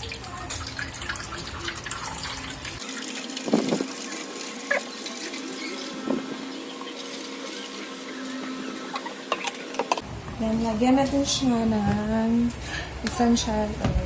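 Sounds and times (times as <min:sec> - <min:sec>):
water pouring into tank: 0:00.0 - 0:06.1.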